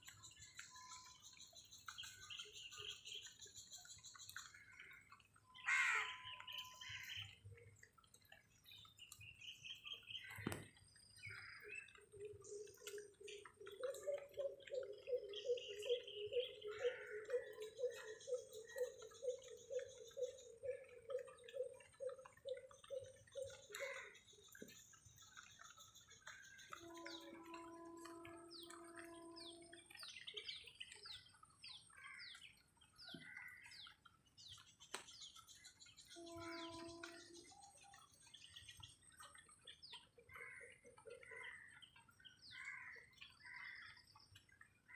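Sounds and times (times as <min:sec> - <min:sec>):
low rhythmic pulsing: 0:11.3 - 0:31.5, 0:35.8 - 0:39.5.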